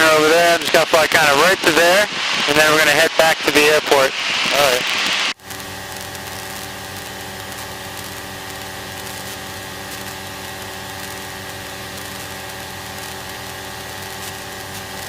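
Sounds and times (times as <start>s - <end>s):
aircraft engine and propeller drone: 0.0s - 5.9s.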